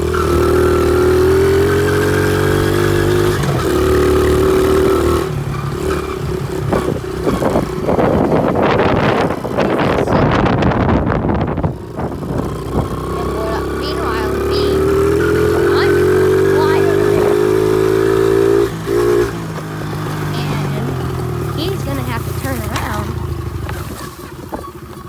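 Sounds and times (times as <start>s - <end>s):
pit bike engine running: 0.0s - 25.0s
engine knocking: 18.8s - 25.0s.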